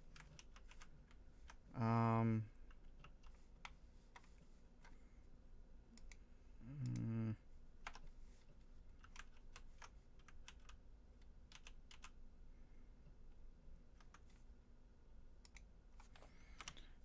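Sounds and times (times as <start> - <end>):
person humming: 1.8 - 2.5, 6.6 - 7.4.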